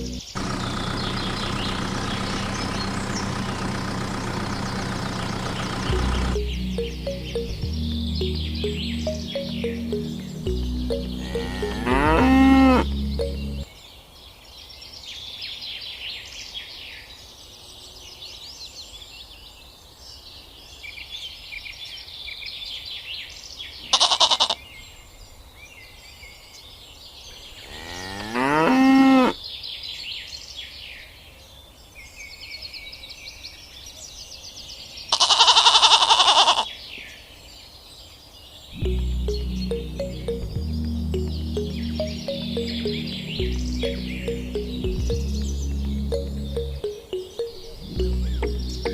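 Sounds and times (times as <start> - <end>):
birdsong: 0.0 - 20.9, 36.6 - 48.9
cow mooing: 11.2 - 12.9, 27.7 - 29.4
loud animal calls: 35.1 - 36.7.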